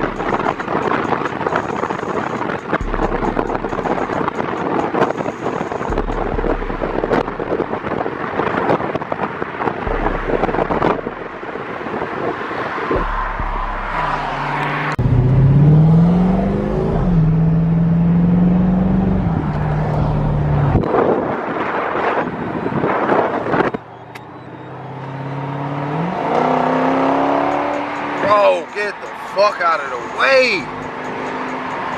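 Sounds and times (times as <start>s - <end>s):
wind noise: 0.0s - 24.3s
car engine accelerating: 0.0s - 31.9s
road noise: 0.0s - 31.9s.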